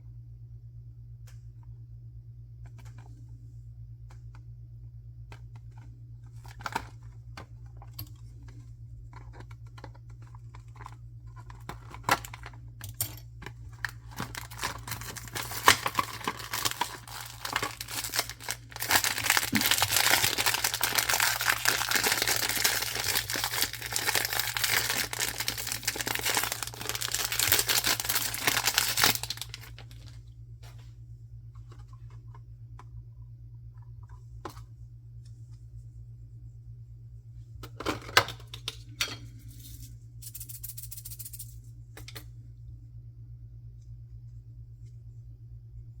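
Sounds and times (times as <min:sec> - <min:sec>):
packaging clicks: 0:09.1 - 0:30.2
packaging crinkling and tearing: 0:13.7 - 0:30.2.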